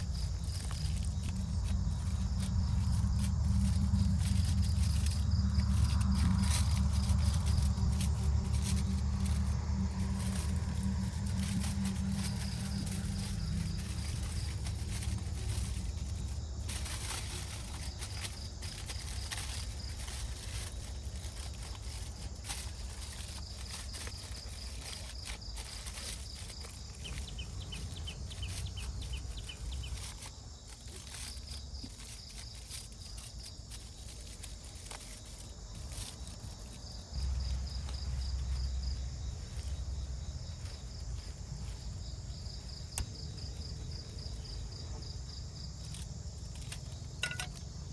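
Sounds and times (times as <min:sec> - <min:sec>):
low rumble: 0:00.0 - 0:23.7
insects chirping in trills: 0:00.0 - 0:47.9
small clicks and rustles: 0:00.0 - 0:47.9.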